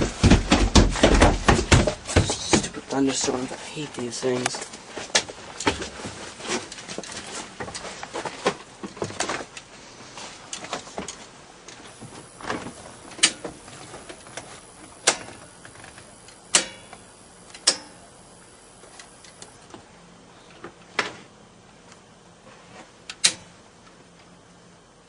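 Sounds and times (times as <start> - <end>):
knocks and bumps of handling: 0.0 - 3.6, 4.3 - 9.7
sharp loud clicks: 16.3 - 18.0.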